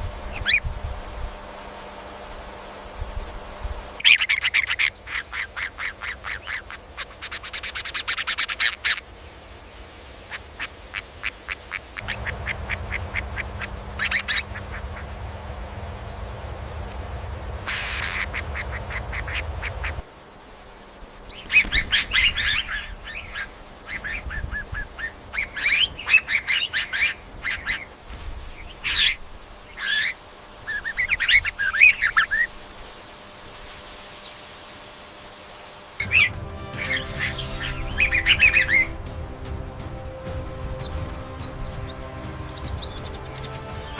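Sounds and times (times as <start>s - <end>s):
bird giving harsh calls: 4.0s - 9.1s, 10.3s - 16.2s, 17.6s - 20.1s, 21.3s - 28.0s, 36.0s - 39.0s.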